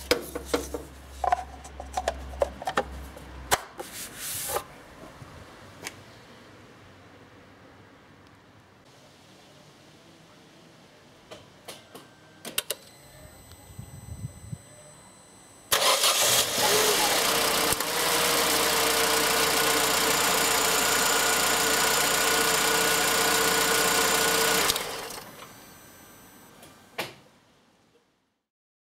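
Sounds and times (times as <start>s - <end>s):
car engine starting and idling: 15.7s - 26.4s.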